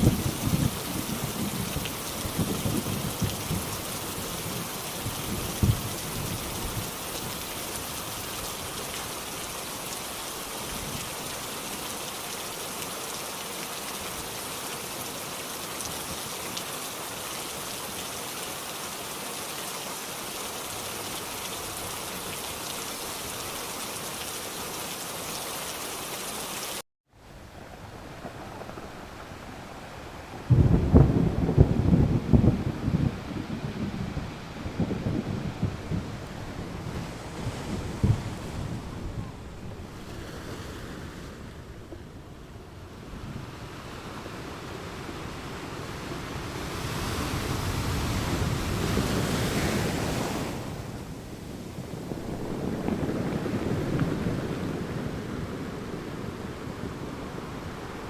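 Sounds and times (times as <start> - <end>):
thunder rumble: 0.0 - 7.0, 27.3 - 40.1, 46.8 - 58.0
heavy rain falling: 0.0 - 40.1, 43.0 - 58.0.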